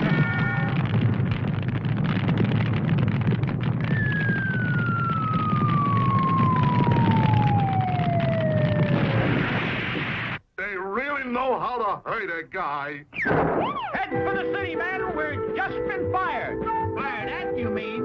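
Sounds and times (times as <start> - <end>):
steady low rumble: 0.0 - 10.4
falling whistle: 3.9 - 9.3, 13.2 - 14.0.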